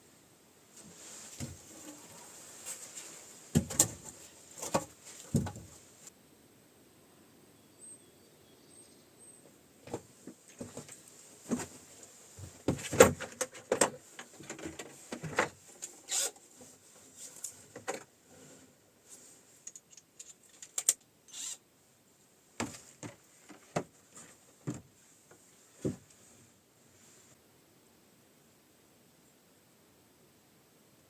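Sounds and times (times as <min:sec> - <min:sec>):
objects knocking and scraping: 0:03.6 - 0:05.8.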